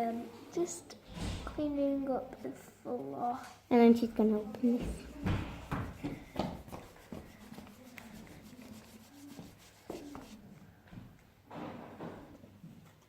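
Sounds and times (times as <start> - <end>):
soft rubbing and rustling: 2.5 - 10.6.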